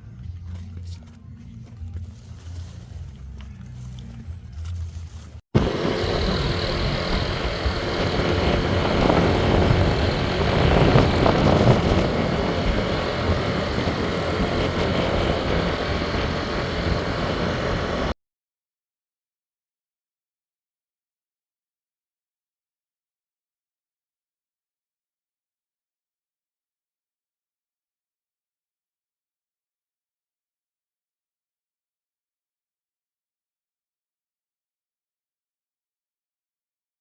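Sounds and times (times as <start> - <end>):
faint low rumble: 0.0 - 18.1
vehicle road and wind noise: 0.0 - 18.2.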